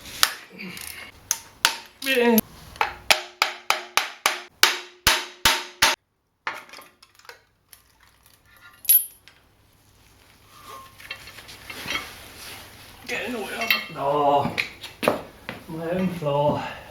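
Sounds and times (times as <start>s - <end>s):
sharp knock: 3.1s - 6.0s.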